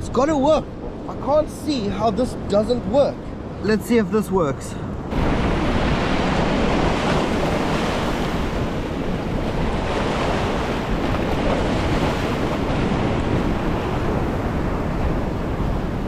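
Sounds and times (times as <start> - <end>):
ocean surf washing in: 0.0 - 16.0
wind noise on microphone: 4.8 - 16.0.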